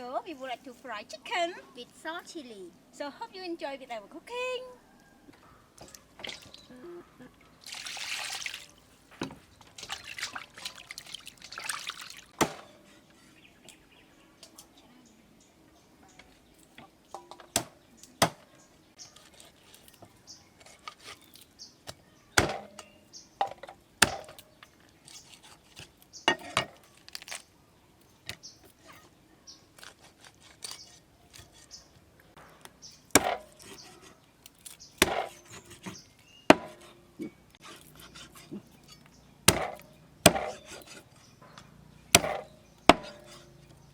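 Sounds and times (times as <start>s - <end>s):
knife chopping on wooden board: 12.4s - 12.8s, 22.4s - 22.8s, 24.0s - 24.4s, 33.1s - 34.0s, 35.0s - 38.7s, 39.5s - 41.0s, 42.2s - 43.5s.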